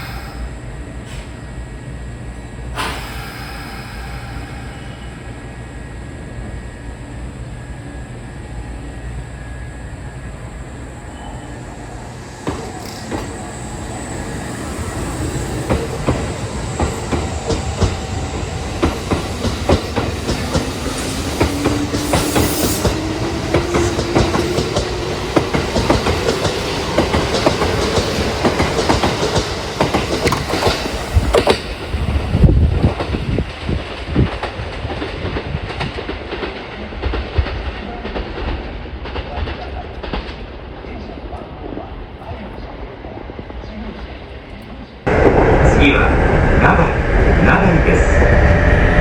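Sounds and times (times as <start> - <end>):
train wheels clattering over rail joints: 14.8 - 40.6.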